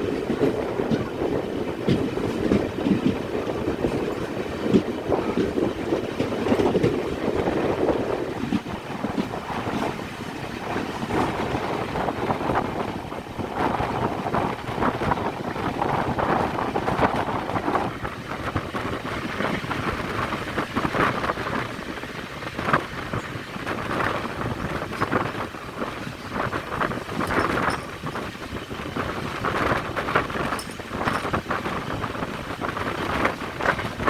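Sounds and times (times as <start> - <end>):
train clanks: 0.0 - 34.0
train wheels rumbling on rail: 0.0 - 34.0
wind buffeting microphone: 0.0 - 34.0.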